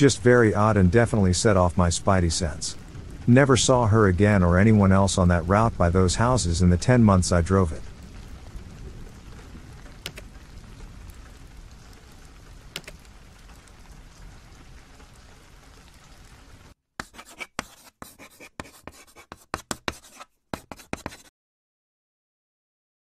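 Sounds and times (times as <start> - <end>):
steady rain: 0.0 - 16.8
faint clicks: 12.7 - 13.7
pencil scribbling: 17.0 - 21.3.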